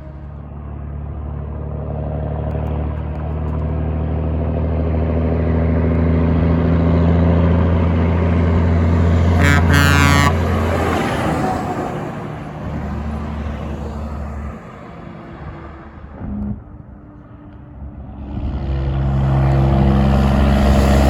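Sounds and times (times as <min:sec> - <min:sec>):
truck diesel engine running: 0:00.0 - 0:21.0
truck horn blast: 0:08.8 - 0:13.0.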